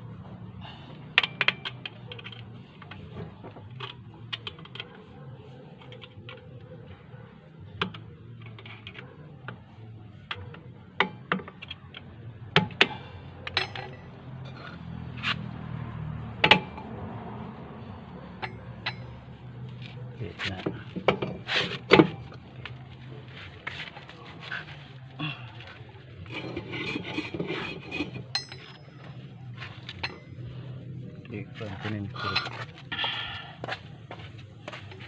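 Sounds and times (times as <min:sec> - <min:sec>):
metal tools clinking: 0:13.4 - 0:14.7, 0:26.2 - 0:32.8.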